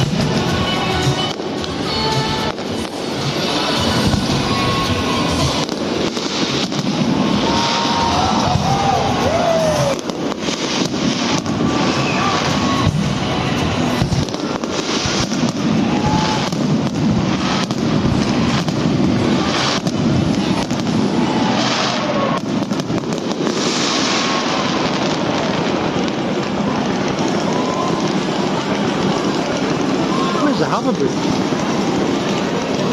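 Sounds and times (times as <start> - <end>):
music playing: 0.0 - 7.4, 11.6 - 16.5
fireworks bursting and crackling: 0.0 - 32.9.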